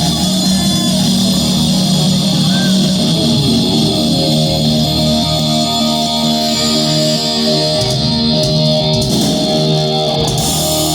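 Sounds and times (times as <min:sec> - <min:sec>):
rock band music with guitar: 0:00.0 - 0:10.9.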